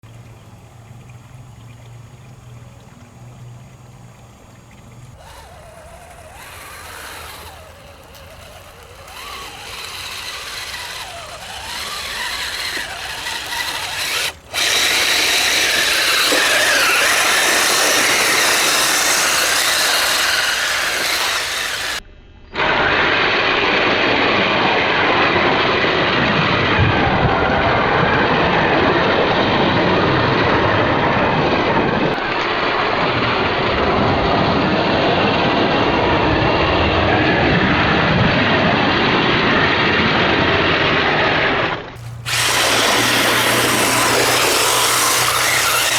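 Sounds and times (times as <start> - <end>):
rc truck motor whining: 0.0 - 22.0, 41.3 - 45.9.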